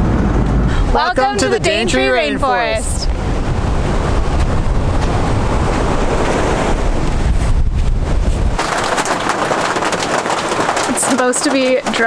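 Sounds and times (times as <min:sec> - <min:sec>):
steady low rumble: 0:00.0 - 0:08.6
wind buffeting microphone: 0:00.0 - 0:12.0.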